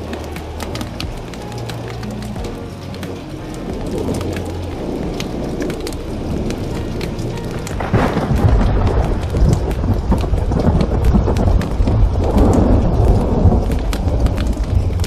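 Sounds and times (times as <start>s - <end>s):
steady rain: 0.0s - 15.0s
thunder rumbling: 0.0s - 15.0s
wood fire crackling: 0.0s - 15.0s.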